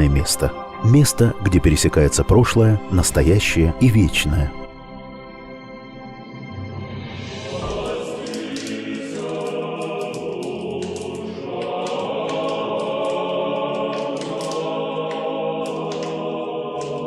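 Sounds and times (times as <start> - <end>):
choir singing: 6.4 - 17.0.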